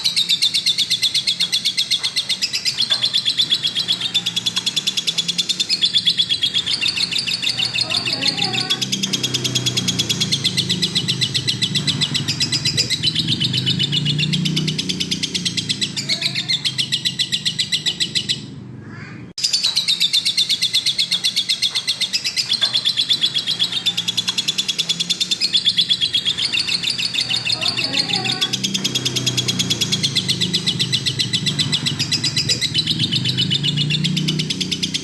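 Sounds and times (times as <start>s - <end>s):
lovebird shrill chirps: 0.0s - 18.5s.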